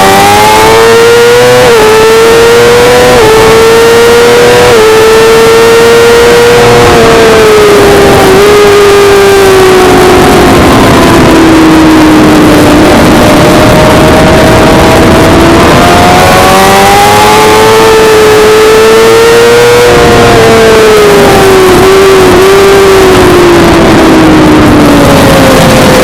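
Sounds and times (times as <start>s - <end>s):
motorcycle engine at high revs: 0.0s - 26.0s
wind rush: 0.0s - 26.0s.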